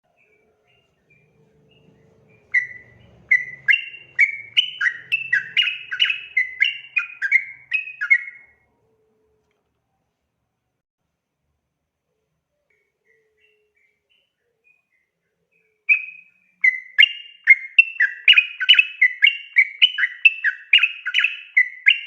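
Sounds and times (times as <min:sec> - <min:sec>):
bird singing bubbly notes: 0:01.1 - 0:08.5.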